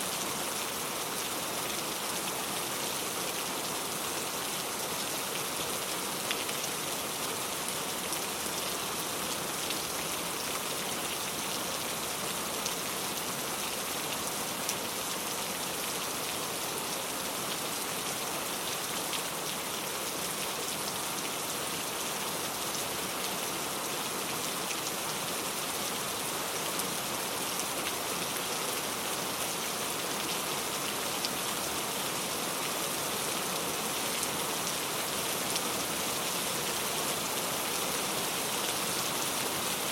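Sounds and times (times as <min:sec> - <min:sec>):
heavy rain falling: 0:24.3 - 0:39.9.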